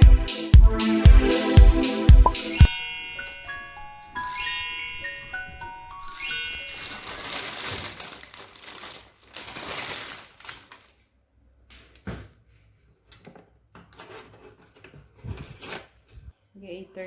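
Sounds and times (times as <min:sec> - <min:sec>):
chiming jingle: 0:02.3 - 0:07.8
crinkling rustle: 0:05.5 - 0:11.1.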